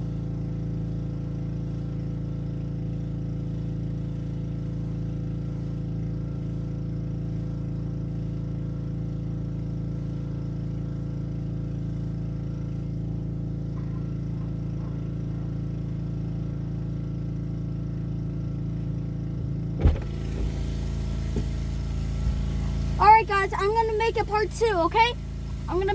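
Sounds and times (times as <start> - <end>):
pressure washer engine running: 14.6 - 25.9
brief thump: 19.8 - 20.6.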